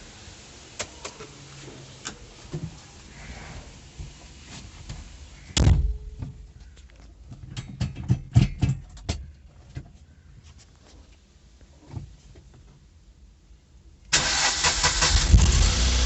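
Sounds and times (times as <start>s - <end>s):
sharp clicks and knocks: 7.3s - 9.9s.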